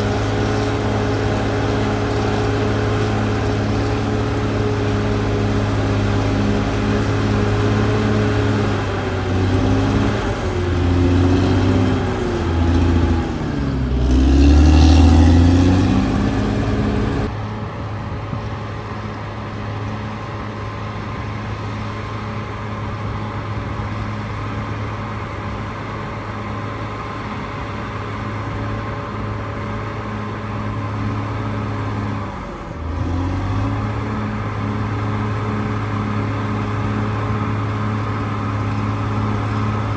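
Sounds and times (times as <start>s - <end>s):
bulldozer diesel engine working: 0.0s - 18.0s.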